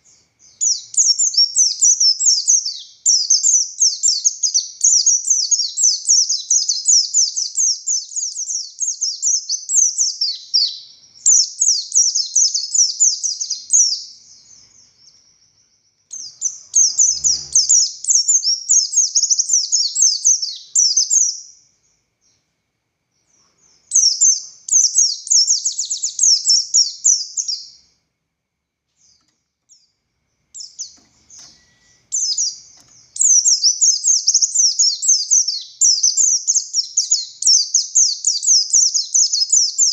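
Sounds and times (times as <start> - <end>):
bird twittering: 0.0 - 22.4, 23.2 - 27.8, 29.0 - 39.9.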